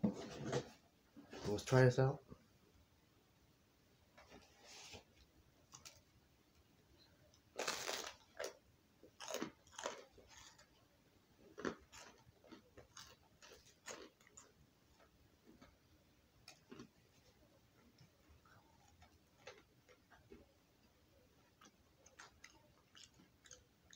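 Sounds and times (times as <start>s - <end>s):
person crunching pizza crust: 7.6s - 8.6s, 9.2s - 10.8s, 11.5s - 15.7s, 16.4s - 16.9s, 18.4s - 20.4s.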